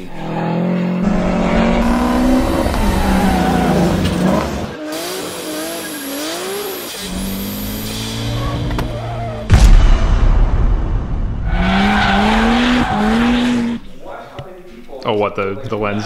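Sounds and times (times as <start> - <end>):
car engines revving hard: 0.0 - 9.5, 11.5 - 13.9
tire squeal: 1.8 - 9.5, 11.5 - 13.8.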